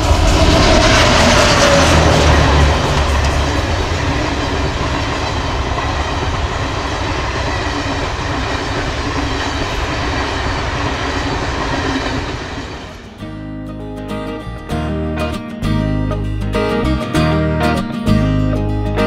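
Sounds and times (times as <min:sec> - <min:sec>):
train wheels rumbling on rails: 0:00.0 - 0:13.2.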